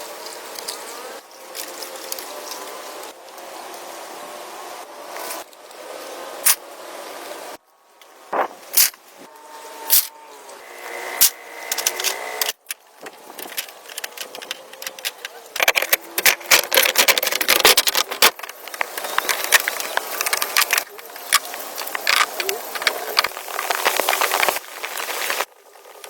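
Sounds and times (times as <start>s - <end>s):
wood rubbing and scraping: 8.3s - 9.7s, 10.4s - 25.5s.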